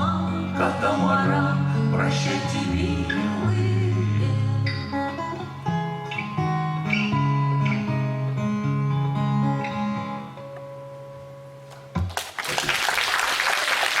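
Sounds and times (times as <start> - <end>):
acoustic guitar playing: 0.0 - 12.4
audience applauding: 12.0 - 14.0.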